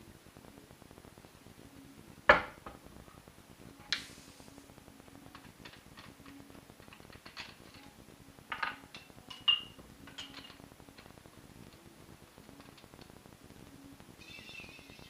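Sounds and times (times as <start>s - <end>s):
dishes and utensils clicking: 5.4s - 7.9s, 8.5s - 11.1s.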